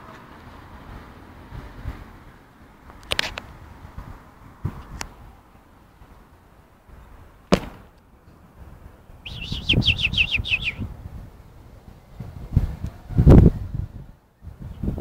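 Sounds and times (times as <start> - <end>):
songbird chirping: 9.1 - 10.9.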